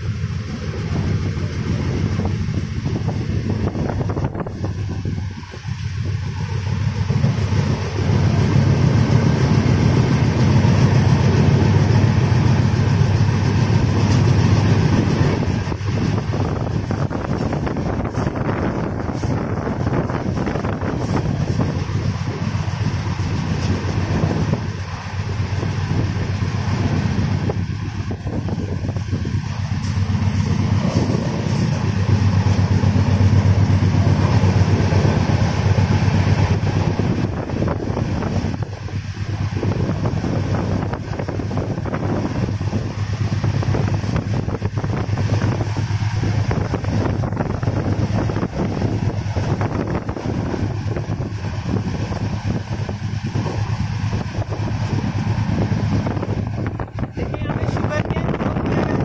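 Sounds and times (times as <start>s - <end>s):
train coach rumbling on rails: 0.0s - 59.0s.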